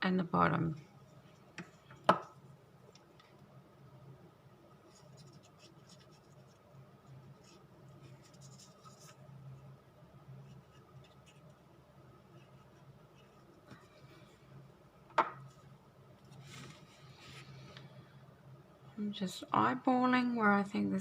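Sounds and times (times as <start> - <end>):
low steady hum: 0.0 - 21.0
glue spreading on paper: 4.8 - 9.3.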